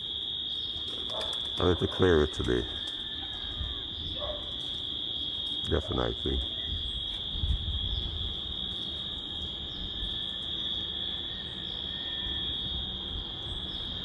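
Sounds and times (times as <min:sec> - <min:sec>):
insects trilling: 0:00.0 - 0:14.0
wind rumble on microphone: 0:02.5 - 0:04.5, 0:06.2 - 0:10.3, 0:12.2 - 0:14.0.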